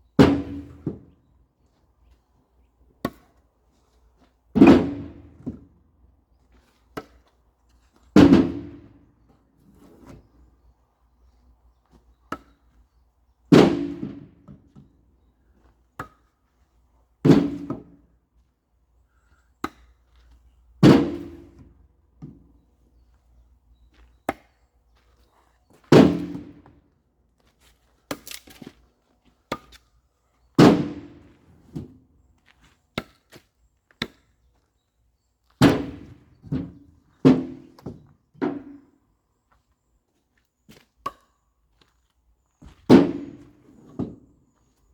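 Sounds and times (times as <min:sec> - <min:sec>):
axe chopping wood: 0:25.9 - 0:26.6, 0:30.6 - 0:31.2, 0:35.6 - 0:36.2.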